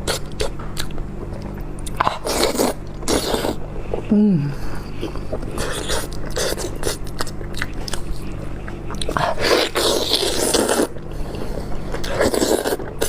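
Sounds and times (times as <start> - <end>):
steady low hum: 0.0 - 13.0
person crunching food: 5.0 - 11.1, 12.0 - 13.0.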